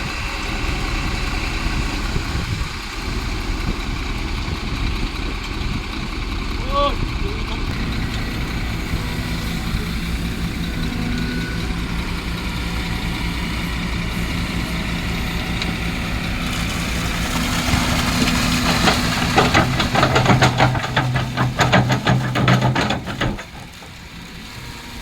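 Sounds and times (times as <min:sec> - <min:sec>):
excavator diesel engine idling: 0:00.0 - 0:25.0
rapid rattling clatter: 0:17.3 - 0:24.4.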